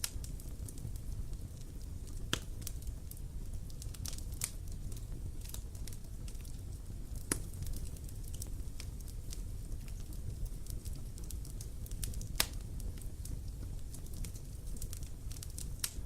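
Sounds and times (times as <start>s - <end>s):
bonfire crackling and popping: 0.0s - 16.0s.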